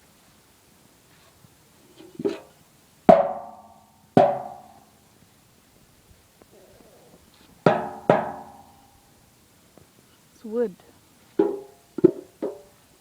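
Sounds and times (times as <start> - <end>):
wooden percussion knocks: 3.1 - 4.8, 7.7 - 8.8, 11.4 - 12.7.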